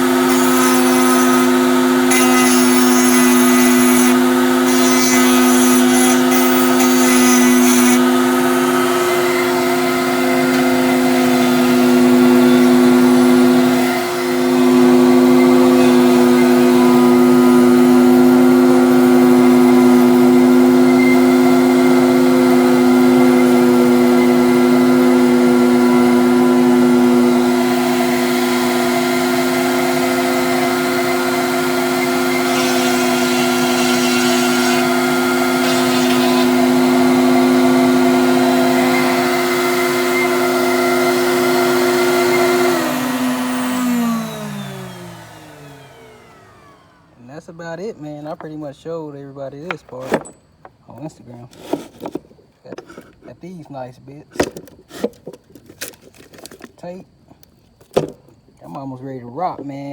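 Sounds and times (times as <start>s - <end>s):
router motor humming: 0.0s - 47.2s
router bit cutting wood: 0.0s - 48.6s
shop vac running: 0.0s - 59.9s.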